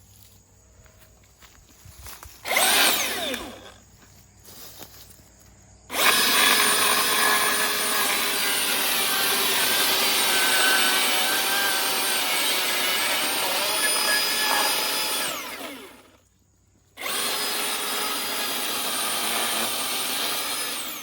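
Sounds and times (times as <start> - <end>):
chainsaw cutting into wood: 2.3 - 3.8, 5.9 - 16.2, 17.0 - 21.0
electric chainsaw revving: 2.4 - 3.8, 5.9 - 16.2, 17.0 - 21.0.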